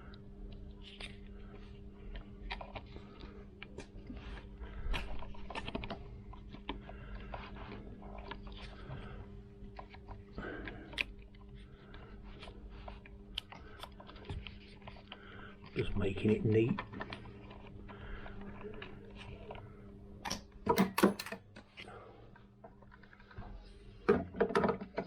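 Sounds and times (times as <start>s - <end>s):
steady low hum: 0.0s - 24.2s
hands handling cable wiring: 20.2s - 21.4s.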